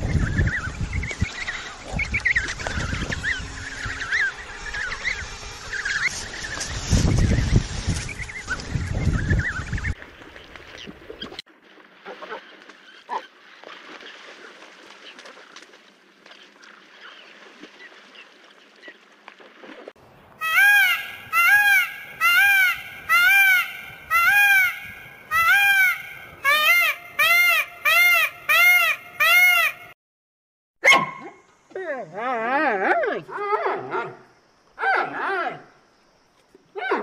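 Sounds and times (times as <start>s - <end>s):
animal calling loudly: 20.4s - 29.9s.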